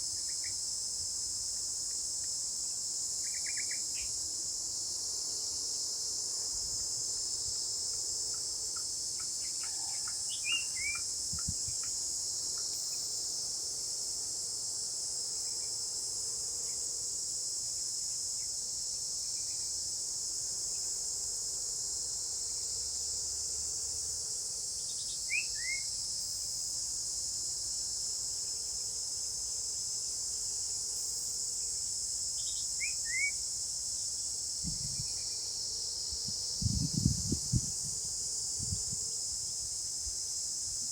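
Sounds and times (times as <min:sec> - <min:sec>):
insects chorus: 0:00.0 - 0:40.9.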